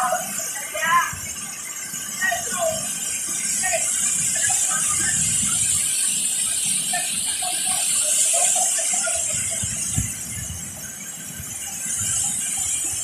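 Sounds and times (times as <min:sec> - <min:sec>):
distant shouts and voices: 0:00.0 - 0:09.9
waterfall hissing: 0:00.0 - 0:13.0.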